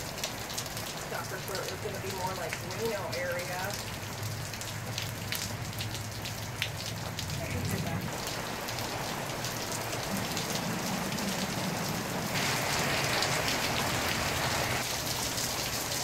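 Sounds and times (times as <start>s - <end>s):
raindrops ticking close by: 0.0s - 16.0s
steady rain: 0.0s - 16.0s.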